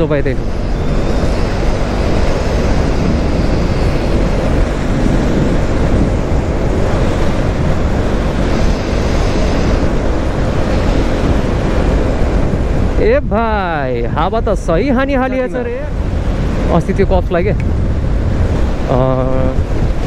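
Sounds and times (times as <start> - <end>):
motorcycle engine: 0.0 - 13.2
road noise: 0.0 - 20.0
wind buffeting microphone: 0.0 - 20.0.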